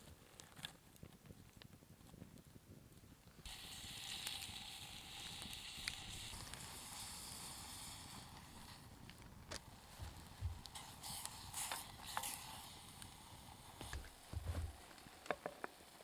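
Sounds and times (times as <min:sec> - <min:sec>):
small pops: 0:00.3 - 0:15.8
food sizzling: 0:03.4 - 0:16.0.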